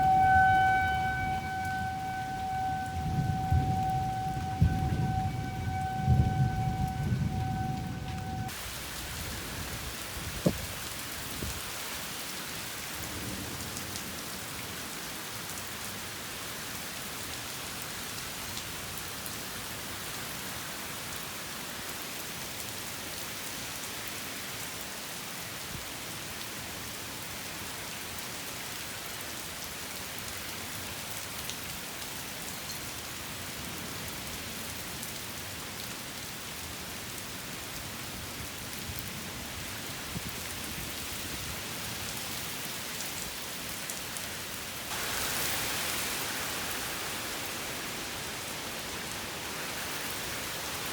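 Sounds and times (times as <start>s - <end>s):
siren-like tone: 0.0s - 8.6s
heavy rain hissing: 0.0s - 15.3s, 43.5s - 50.9s.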